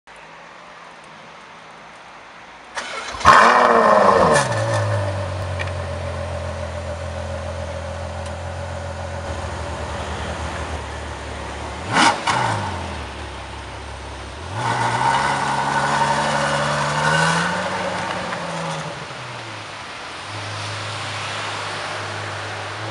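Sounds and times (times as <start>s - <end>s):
car engine cranking: 2.8s - 9.2s
car engine revving and idling: 2.8s - 22.9s.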